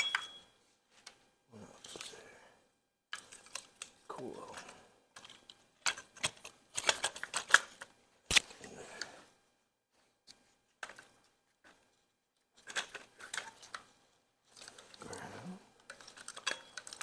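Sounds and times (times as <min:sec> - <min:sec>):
hand tools clicking and clattering: 0:15.9 - 0:17.0.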